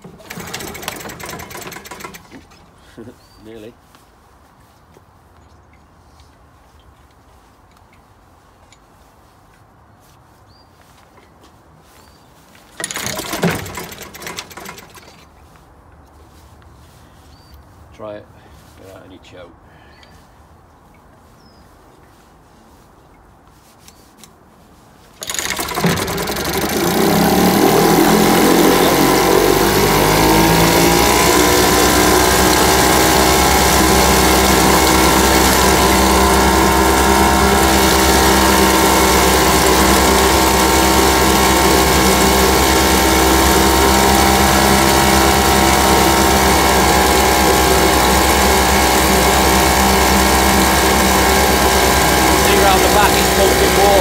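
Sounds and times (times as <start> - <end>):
outboard engine starting and running: 0.0 - 2.6, 12.8 - 15.3, 25.2 - 54.0.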